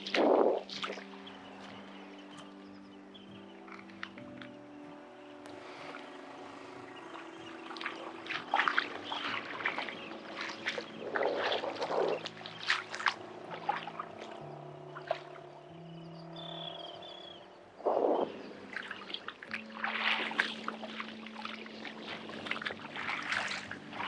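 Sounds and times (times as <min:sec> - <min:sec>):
water splashing around rocks: 0:00.0 - 0:01.6, 0:05.5 - 0:15.6, 0:17.8 - 0:24.0
soft background music: 0:00.0 - 0:24.0.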